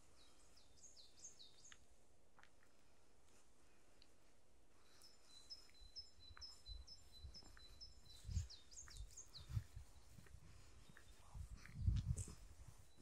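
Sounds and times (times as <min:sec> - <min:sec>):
songbird singing: 0:00.0 - 0:02.0, 0:04.7 - 0:13.0.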